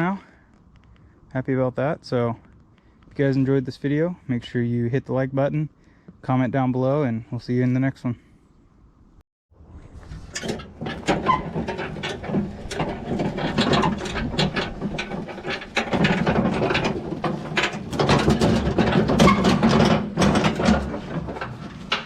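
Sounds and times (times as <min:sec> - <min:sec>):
mechanical clattering: 0:10.3 - 0:22.0.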